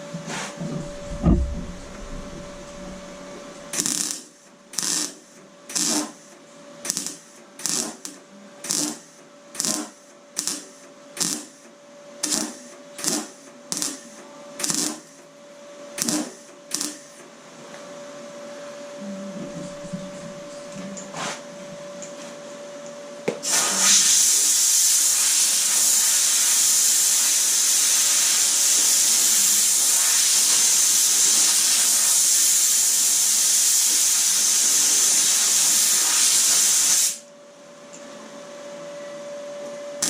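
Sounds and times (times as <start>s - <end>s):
faint hum: 0.0s - 3.8s, 11.8s - 23.3s, 37.2s - 40.0s
thump: 0.6s - 3.0s
crackling tack welds: 0.7s - 15.3s, 16.0s - 17.3s, 23.4s - 37.2s.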